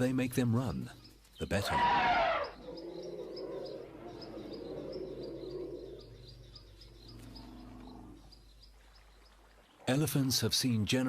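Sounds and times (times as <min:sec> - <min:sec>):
insects chirping: 0:00.9 - 0:09.8
loud animal call: 0:01.6 - 0:06.3.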